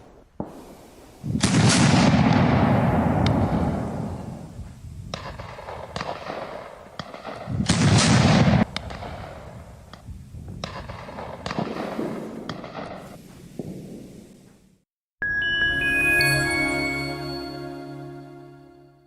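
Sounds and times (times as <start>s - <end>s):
single gunshots: 0.0s - 4.5s, 5.2s - 9.5s, 10.6s - 14.0s
artillery boom: 0.4s - 6.5s, 7.2s - 9.6s.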